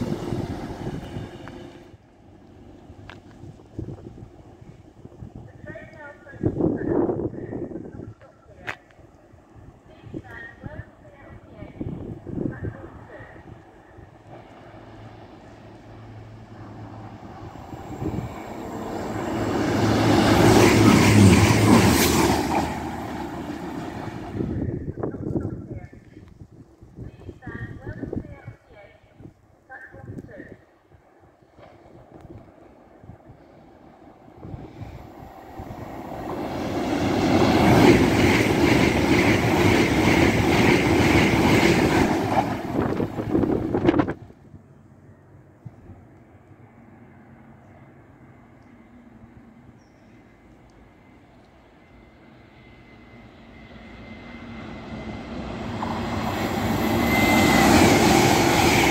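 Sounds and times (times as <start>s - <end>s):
diesel train engine drone: 0.0s - 27.0s, 29.5s - 58.9s
train wheel noise: 10.1s - 25.3s, 33.9s - 44.3s, 50.9s - 58.9s.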